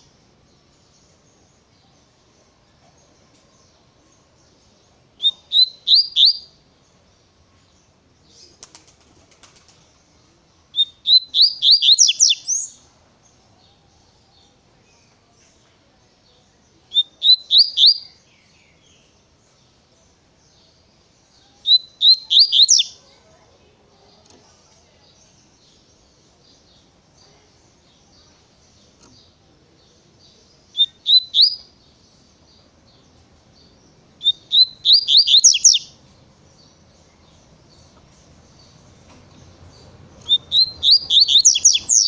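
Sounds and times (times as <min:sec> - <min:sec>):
bird singing whistled notes: 0:04.4 - 0:06.7, 0:10.7 - 0:13.4, 0:16.3 - 0:19.2, 0:20.5 - 0:23.0, 0:30.0 - 0:33.0, 0:33.6 - 0:36.0, 0:39.7 - 0:42.0.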